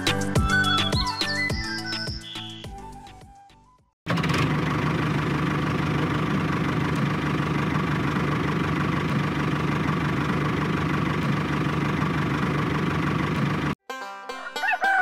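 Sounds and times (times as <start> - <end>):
tractor engine running: 4.1 - 13.8.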